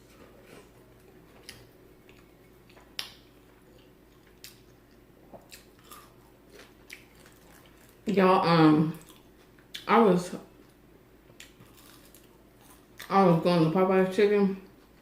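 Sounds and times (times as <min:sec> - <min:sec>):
faint chewing with wet clicks: 0:01.0 - 0:08.2, 0:08.9 - 0:09.9, 0:10.6 - 0:13.2.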